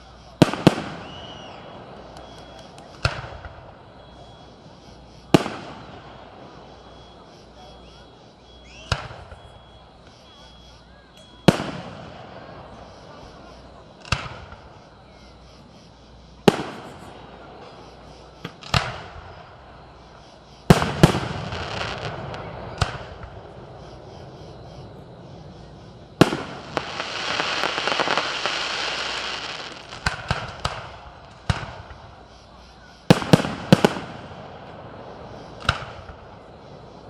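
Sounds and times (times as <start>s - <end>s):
firework shells booming: 0.0s - 4.0s, 5.2s - 7.3s, 8.8s - 9.5s, 11.3s - 14.8s, 16.4s - 32.3s, 33.0s - 37.0s
crackling firework shower: 0.0s - 37.0s
rapid firework pops: 0.3s - 3.8s, 8.8s - 9.4s, 14.0s - 14.8s, 18.4s - 19.4s, 20.7s - 23.6s, 26.2s - 32.1s, 33.1s - 36.5s.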